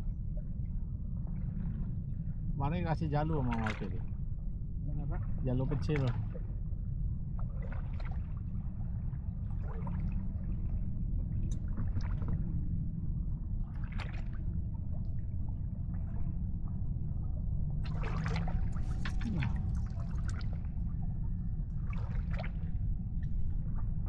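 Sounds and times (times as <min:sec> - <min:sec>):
steady low rumble: 0:00.0 - 0:24.0
water slapping boat hull: 0:03.0 - 0:04.2, 0:05.0 - 0:06.4, 0:07.4 - 0:08.6, 0:11.4 - 0:12.7, 0:13.6 - 0:15.2, 0:17.8 - 0:20.8, 0:21.8 - 0:23.4.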